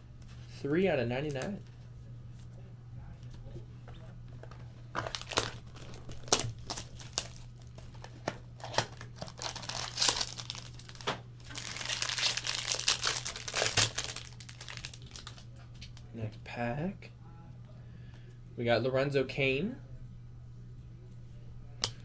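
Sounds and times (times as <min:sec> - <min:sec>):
low electrical hum: 0:00.0 - 0:22.0
wrapper crinkling and tearing: 0:04.9 - 0:16.0.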